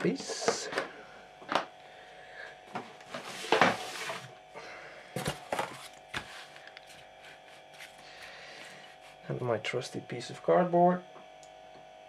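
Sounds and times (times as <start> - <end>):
cardboard sliding on a mat: 3.1 - 4.3.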